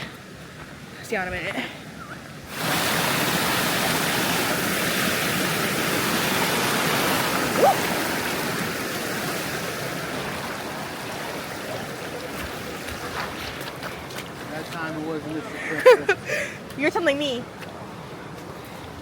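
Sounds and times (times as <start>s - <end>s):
waterfall rushing: 2.5s - 16.3s
person shouting woo: 7.6s - 7.9s.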